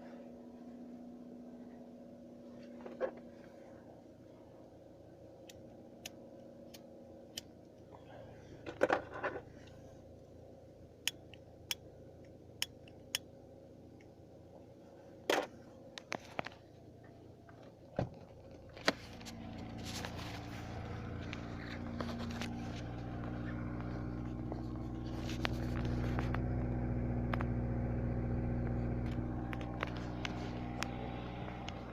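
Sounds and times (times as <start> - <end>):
car engine idling: 0.0 - 31.9.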